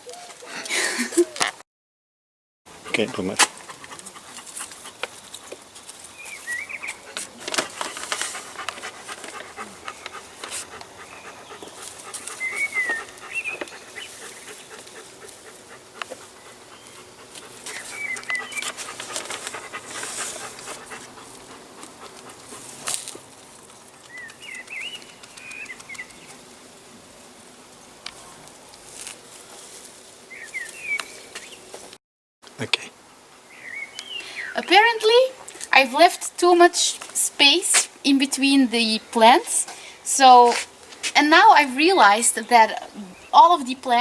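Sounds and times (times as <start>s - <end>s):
hands rustling potting soil: 2.9s - 26.4s, 28.0s - 32.0s
songbird chirping: 3.0s - 22.9s, 23.8s - 26.5s, 30.3s - 31.8s, 33.4s - 44.0s.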